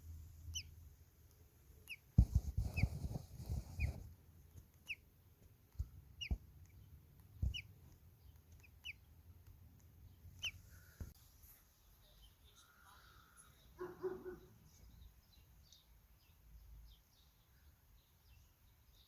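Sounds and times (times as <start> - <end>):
small bird chirping: 0.0 - 19.0
dull thumps: 2.1 - 4.1, 7.4 - 8.0.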